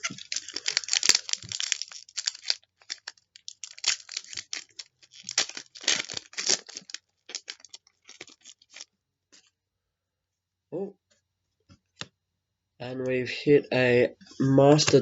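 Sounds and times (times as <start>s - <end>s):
wrapper tearing and crinkling: 0.0s - 8.9s.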